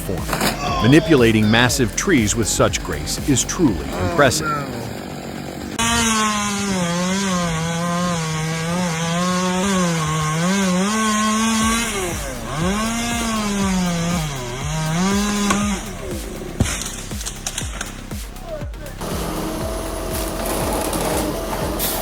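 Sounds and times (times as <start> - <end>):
chainsaw cutting wood: 0.0 - 22.0.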